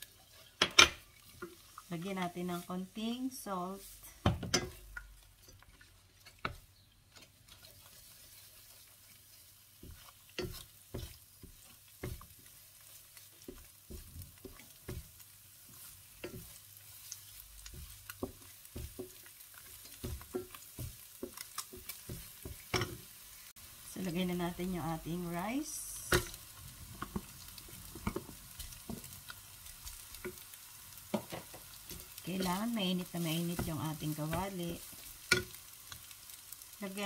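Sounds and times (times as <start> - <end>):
wooden spatula scraping pan: 0.0 - 23.1
eggs sizzling in oil: 0.0 - 37.0.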